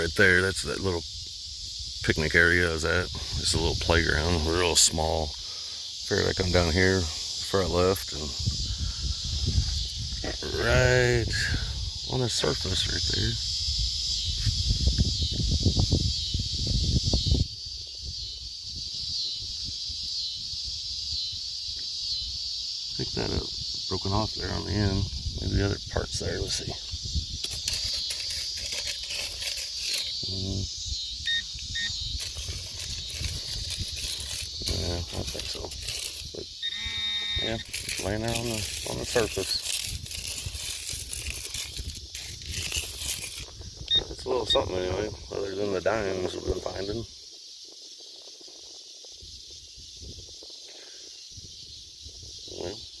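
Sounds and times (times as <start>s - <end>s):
high-pitched insect drone: 0.0s - 53.0s
steady high hiss: 0.0s - 53.0s
hand rustling through loose ground: 26.2s - 30.3s, 31.4s - 36.6s, 37.4s - 43.9s.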